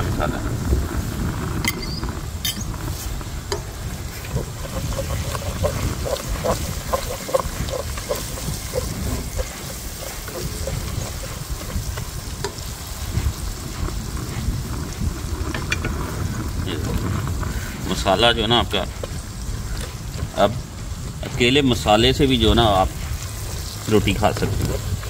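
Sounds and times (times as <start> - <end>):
spices sizzling in hot oil: 0.0 - 25.0
steady low rumble: 0.0 - 25.0
spoon stirring in pot: 3.5 - 13.8.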